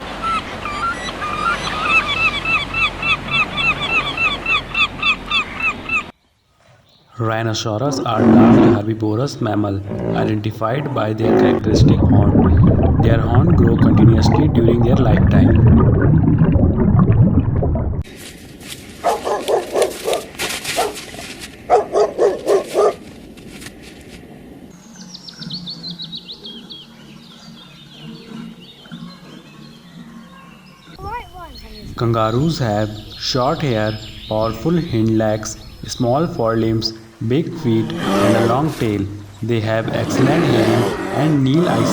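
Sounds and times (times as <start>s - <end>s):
bird chirping: 24.8s - 39.6s.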